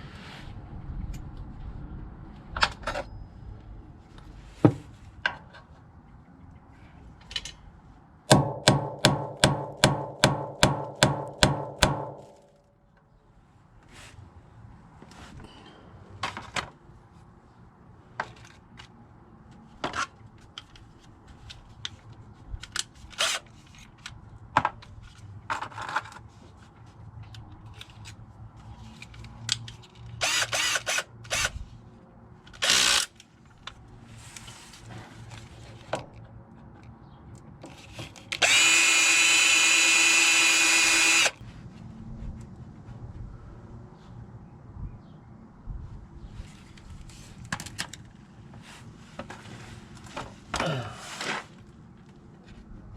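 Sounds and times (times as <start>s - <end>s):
power drill running: 30.2s - 31.5s, 32.6s - 33.1s, 38.4s - 41.4s.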